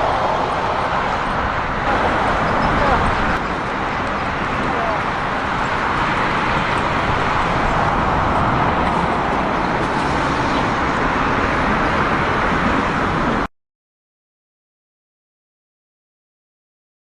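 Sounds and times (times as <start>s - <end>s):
jet engines rushing: 0.0s - 13.5s.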